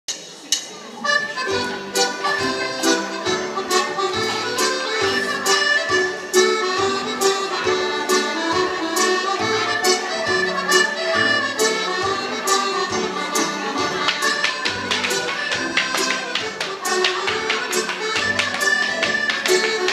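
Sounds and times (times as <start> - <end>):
accordion dance tune: 1.0 - 19.9
sharp regular taps: 13.4 - 19.9.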